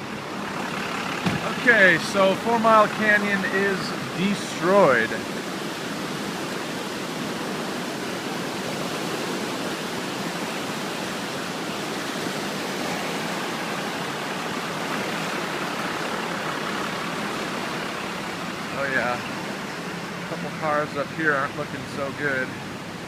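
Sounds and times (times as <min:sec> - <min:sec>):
fast water rushing: 0:00.0 - 0:23.0.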